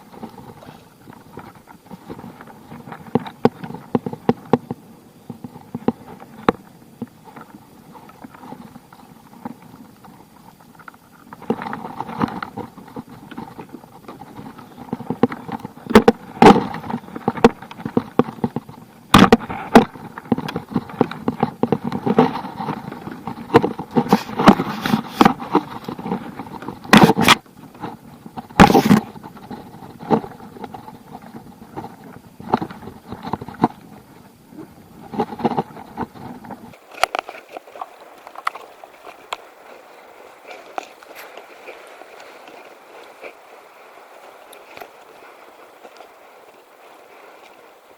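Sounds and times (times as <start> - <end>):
water splashing against kayak: 0.0 - 47.9
knocks against kayak hull: 15.0 - 22.3, 26.9 - 27.4.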